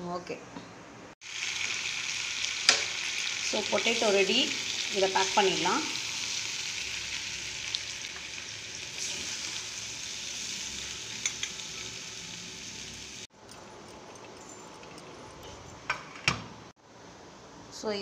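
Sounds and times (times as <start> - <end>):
potatoes sizzling in a pan: 1.2 - 13.3
steel spoon scraping and clinking: 11.1 - 12.0, 13.4 - 16.0.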